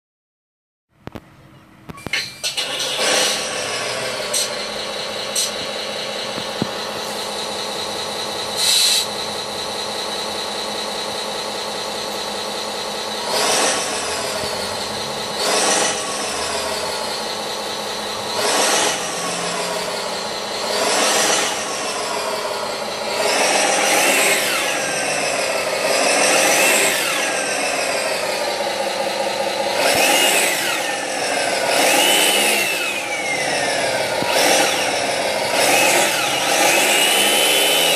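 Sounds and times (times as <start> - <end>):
toy truck engine sound idling and revving: 1.9 - 37.9
turbo whistle: 8.6 - 9.1.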